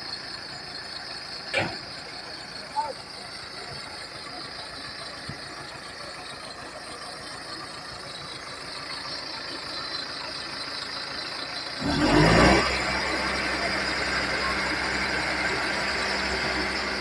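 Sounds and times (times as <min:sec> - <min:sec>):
bulldozer diesel engine running: 0:00.0 - 0:17.0
engine surge: 0:00.3 - 0:17.0.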